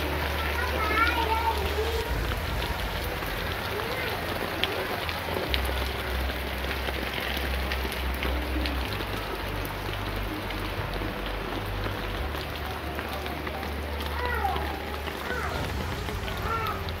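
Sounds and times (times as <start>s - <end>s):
rain falling: 0.0s - 17.0s
wind rumble on microphone: 2.0s - 5.0s.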